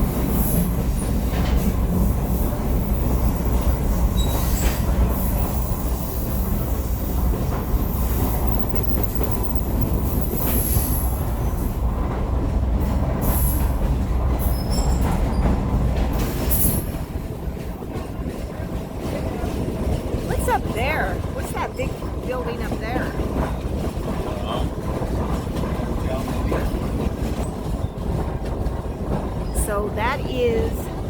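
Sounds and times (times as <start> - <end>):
train rumbling on track: 0.0 - 31.0
wheel squeals: 4.1 - 7.2, 14.4 - 15.6.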